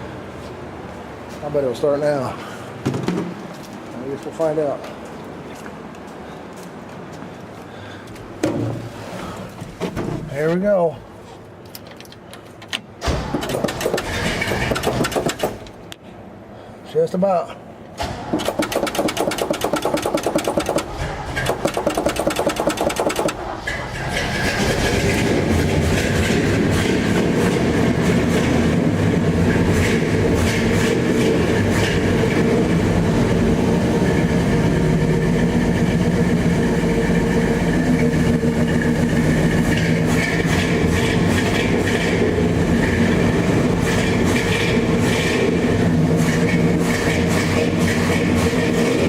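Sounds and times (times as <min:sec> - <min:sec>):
engine starter cranking: 0:13.0 - 0:15.7, 0:18.2 - 0:25.5
truck engine running: 0:18.4 - 0:49.0.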